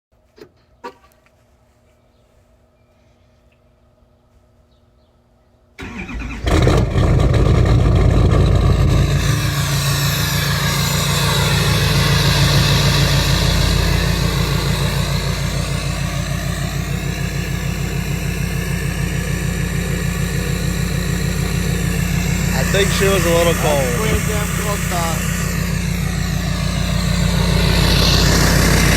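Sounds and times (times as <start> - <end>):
diesel engine idling with knock: 6.5 - 28.9.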